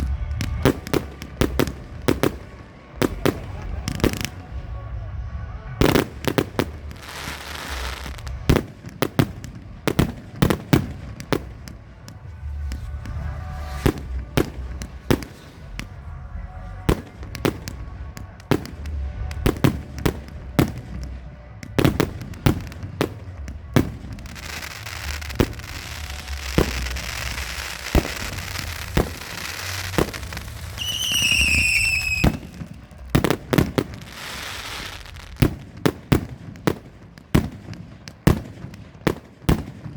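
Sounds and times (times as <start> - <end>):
firework pops and bursts: 0.0 - 4.6, 5.8 - 16.1, 16.8 - 39.9
firework crackling: 0.0 - 39.9
firework whistle falling: 24.5 - 35.4.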